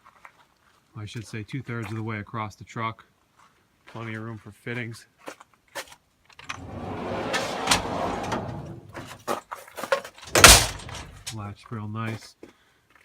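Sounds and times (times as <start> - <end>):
metal drawer rolling shut: 6.5 - 9.2, 10.3 - 11.3.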